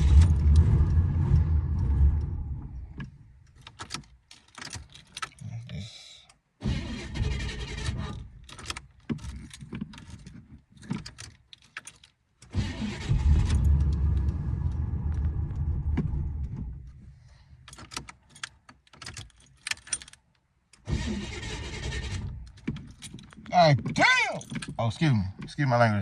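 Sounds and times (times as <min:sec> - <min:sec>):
car engine cranking: 0:00.0 - 0:05.4, 0:06.6 - 0:17.0, 0:17.6 - 0:25.7
keys jingling: 0:03.5 - 0:05.4, 0:08.4 - 0:12.5, 0:17.6 - 0:20.3, 0:22.5 - 0:25.0.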